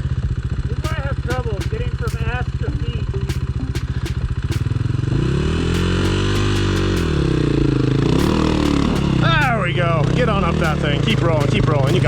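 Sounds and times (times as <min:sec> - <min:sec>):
sharp clicks and knocks: 0:00.8 - 0:04.7, 0:05.8 - 0:07.2
dirt bike engine revving: 0:04.3 - 0:12.0.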